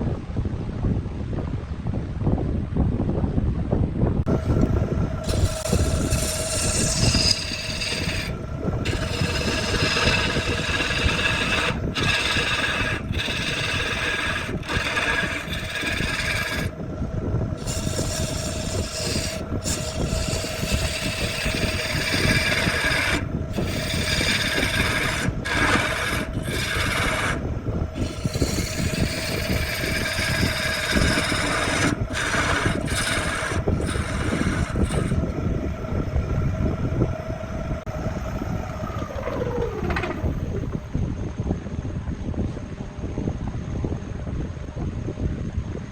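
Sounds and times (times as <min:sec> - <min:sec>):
power tool motor running: 0:04.3 - 0:16.8, 0:17.5 - 0:35.7, 0:37.1 - 0:40.8
tool grinding wood: 0:04.3 - 0:36.2, 0:37.0 - 0:40.8.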